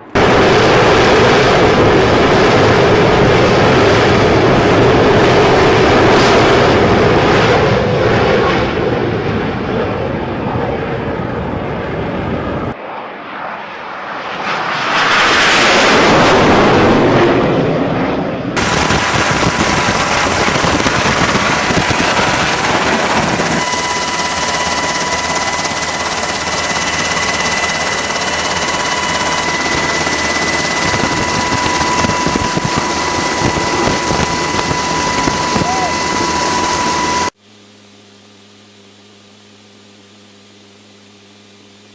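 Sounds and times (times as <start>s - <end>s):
jet aircraft roar: 0.0s - 37.4s
thin steady tones: 18.6s - 37.3s.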